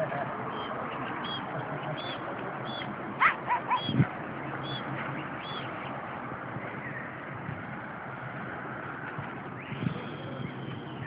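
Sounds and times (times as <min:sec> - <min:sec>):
outdoor background noise: 0:00.0 - 0:11.0
bird peeping: 0:00.5 - 0:02.9, 0:04.6 - 0:06.0
louder bird calls: 0:00.5 - 0:04.0, 0:04.6 - 0:05.9.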